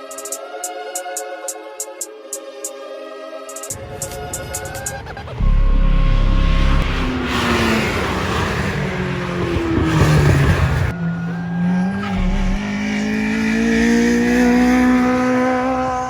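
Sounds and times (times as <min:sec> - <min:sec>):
engine revving up: 0:03.7 - 0:16.0
race car engines running hard: 0:03.8 - 0:16.0
tyres squealing: 0:10.8 - 0:13.3.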